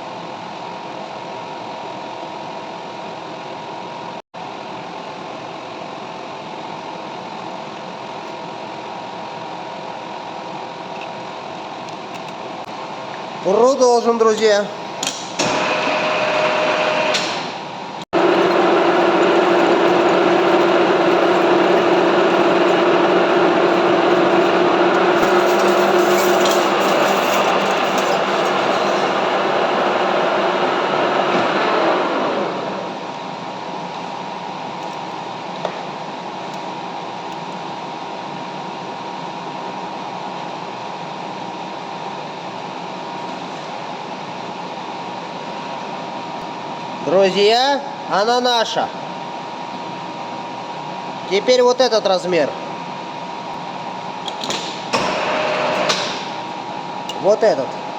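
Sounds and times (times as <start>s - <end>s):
metal lathe humming: 18.2s - 33.2s.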